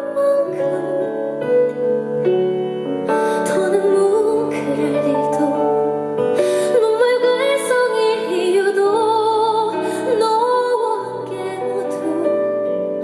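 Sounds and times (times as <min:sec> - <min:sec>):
soft instrumental accompaniment: 0:00.0 - 0:13.0
woman singing with vibrato: 0:03.3 - 0:12.5.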